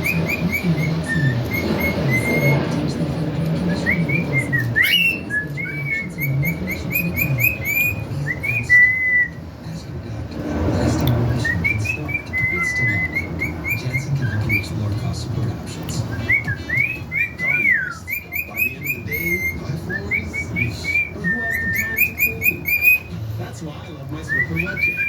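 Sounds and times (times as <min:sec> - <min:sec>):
bird whistling: 0:00.0 - 0:02.8, 0:03.7 - 0:09.4, 0:11.4 - 0:14.8, 0:16.0 - 0:23.2, 0:24.2 - 0:25.0
low murmur: 0:00.0 - 0:25.0.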